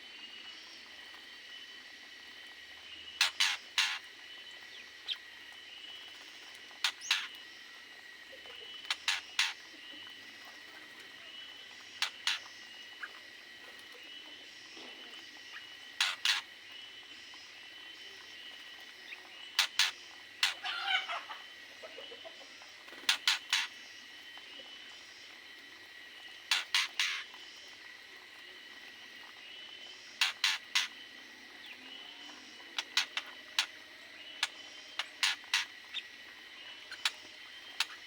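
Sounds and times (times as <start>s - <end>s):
birds giving sharp calls: 3.2s - 4.1s, 6.8s - 7.4s, 8.7s - 9.7s, 12.0s - 13.2s, 15.5s - 16.5s, 19.5s - 23.9s, 26.4s - 27.5s, 30.1s - 31.1s, 32.5s - 38.0s
bird warbling call: 26.5s - 27.4s, 30.2s - 31.0s, 32.4s - 36.2s.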